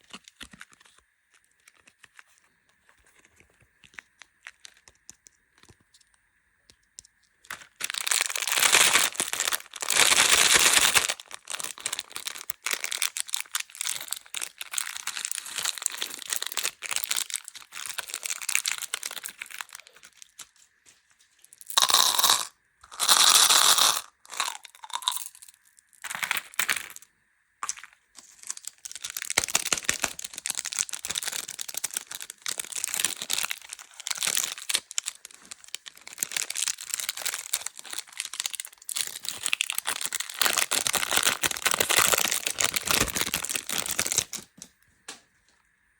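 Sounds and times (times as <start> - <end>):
plastic wrappers crinkling and tearing: 0.0 - 6.2, 7.4 - 27.0, 27.6 - 44.7.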